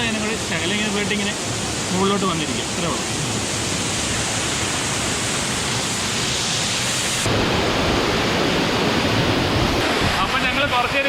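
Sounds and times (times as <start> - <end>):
waterfall roar: 0.0 - 11.0.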